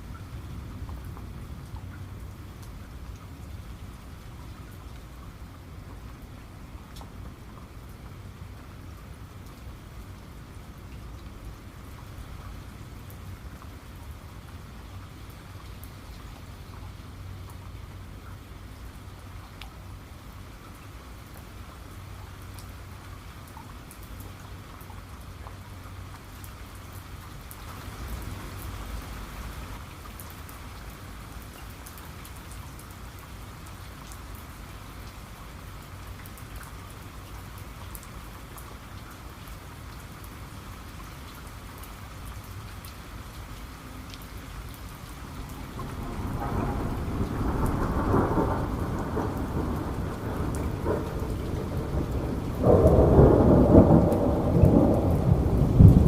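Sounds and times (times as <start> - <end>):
steady rain falling: 0.0 - 56.0
rolling thunder: 45.4 - 56.0.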